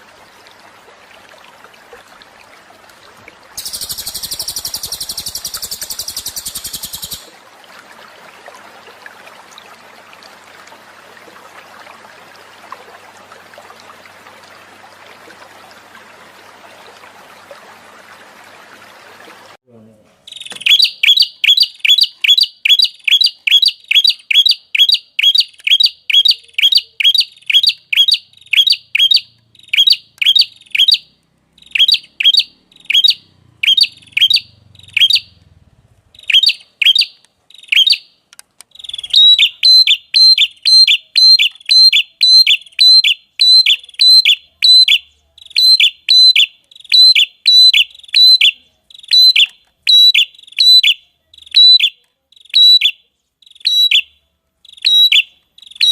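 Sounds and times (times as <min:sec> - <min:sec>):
songbird calling high sliding note: 0:03.6 - 0:07.3.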